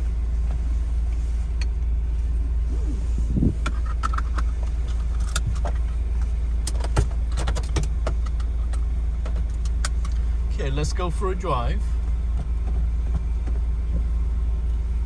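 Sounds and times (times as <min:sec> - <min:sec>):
car engine idling: 0:00.0 - 0:15.0
seatbelt clicks and rattles: 0:02.9 - 0:10.2.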